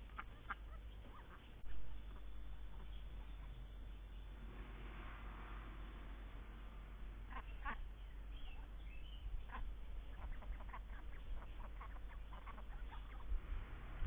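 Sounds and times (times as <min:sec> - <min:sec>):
ducks quacking: 0:00.0 - 0:03.8, 0:07.2 - 0:13.8.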